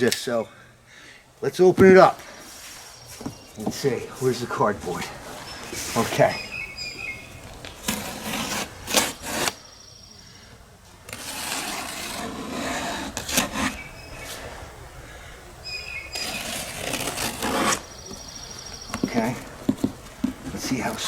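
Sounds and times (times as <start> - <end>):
cardboard box scraping and rubbing: 7.7 - 9.7, 11.1 - 14.4, 16.1 - 18.1.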